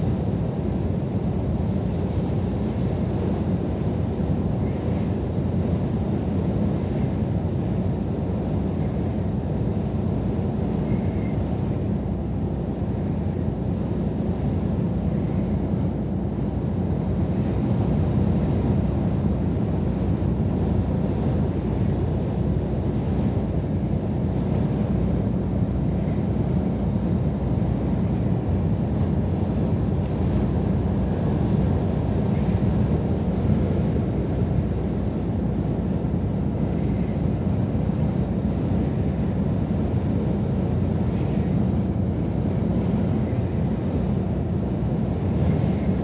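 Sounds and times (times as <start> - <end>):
truck diesel engine drone: 0.0 - 7.7.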